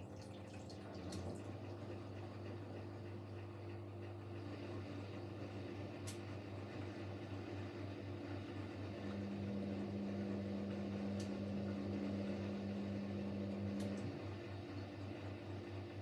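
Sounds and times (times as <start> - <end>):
washing machine pulsing hum: 0.0 - 16.0.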